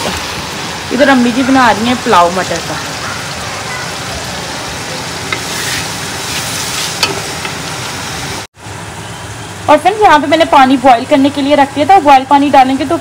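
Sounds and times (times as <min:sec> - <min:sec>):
peas and spices sizzling in oil: 0:04.5 - 0:08.5.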